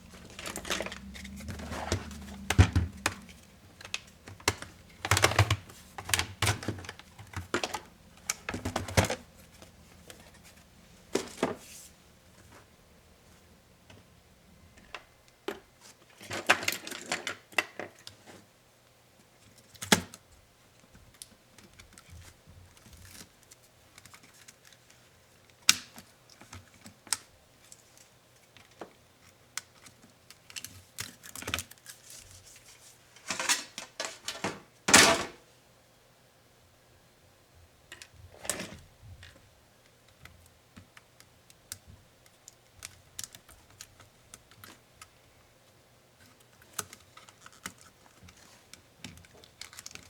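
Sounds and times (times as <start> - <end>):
rattling handling: 0.0 - 10.6
laptop parts clicking and clattering: 0.0 - 11.6, 28.5 - 32.3, 40.1 - 45.2, 46.2 - 50.0.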